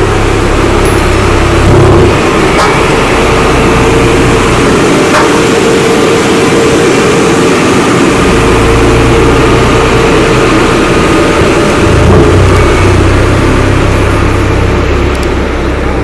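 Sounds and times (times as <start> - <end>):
engine whine: 0.0 - 16.0
heavy engine running: 0.0 - 16.0.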